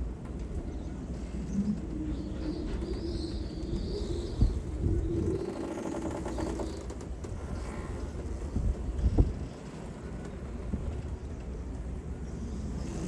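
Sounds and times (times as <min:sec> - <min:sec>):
gusty wind on microphone: 0:01.4 - 0:09.8.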